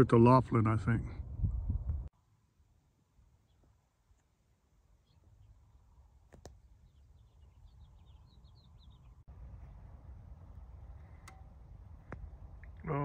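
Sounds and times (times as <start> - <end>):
low wind rumble on microphone: 0.7 - 2.1
faint bird chirping: 3.1 - 9.8.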